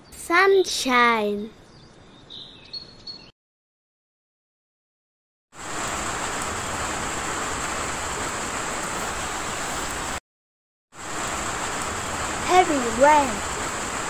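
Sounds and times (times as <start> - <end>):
heavy rain pouring: 5.6 - 10.2, 11.0 - 14.0.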